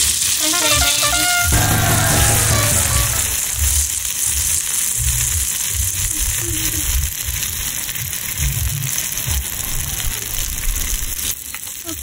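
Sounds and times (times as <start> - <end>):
patty sizzling in a skillet: 0.0 - 12.0
uneven low rumble: 1.5 - 4.1.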